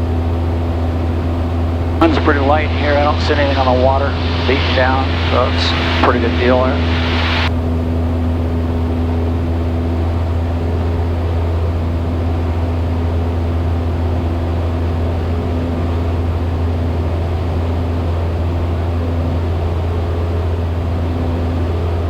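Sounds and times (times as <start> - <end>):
aircraft engine droning: 0.0 - 22.0
air rushing: 2.0 - 7.5.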